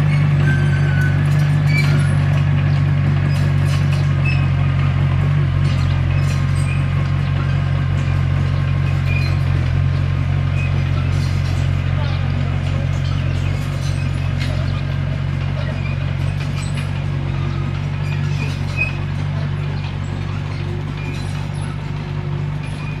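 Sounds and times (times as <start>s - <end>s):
faint short high squeaks: 0.0s - 2.5s, 3.2s - 4.6s, 8.9s - 9.6s, 15.6s - 23.0s
bulldozer diesel engine running: 0.0s - 23.0s.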